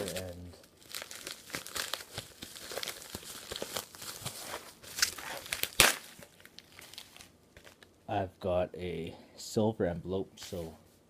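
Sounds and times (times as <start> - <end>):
package being torn open: 0.0 - 7.9.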